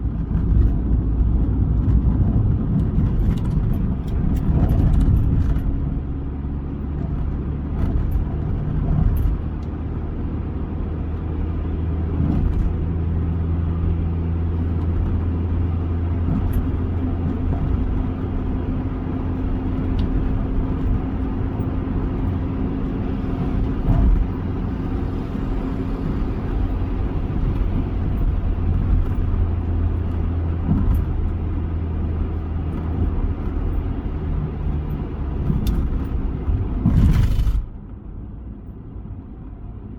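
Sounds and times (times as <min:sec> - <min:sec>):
car engine hum: 0:00.0 - 0:39.9
road noise: 0:00.0 - 0:39.9.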